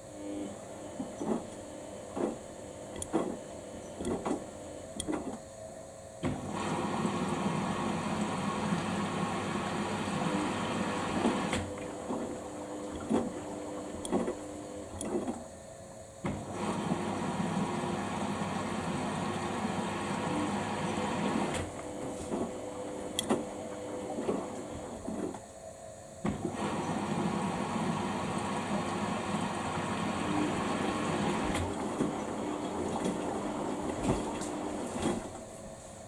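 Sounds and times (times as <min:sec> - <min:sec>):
washing machine drum motor whirring: 0:06.2 - 0:15.5, 0:16.2 - 0:25.4, 0:26.2 - 0:35.6.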